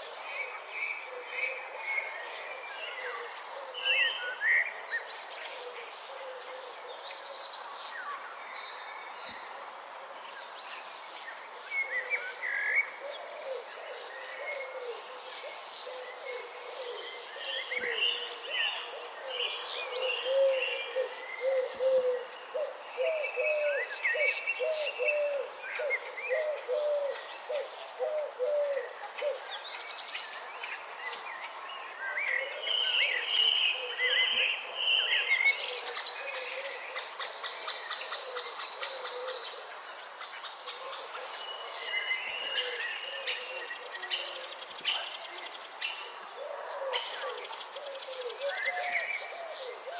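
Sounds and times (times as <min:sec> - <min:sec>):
birds singing and calling: 0:41.5 - 0:49.8.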